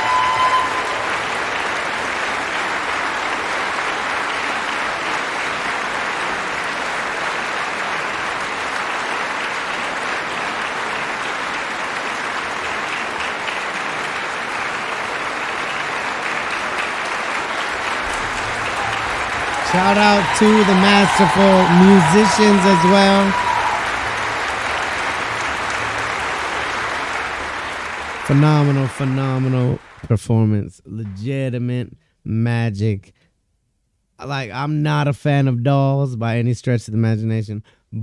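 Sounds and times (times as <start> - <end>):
audience applauding: 0.0 - 30.1.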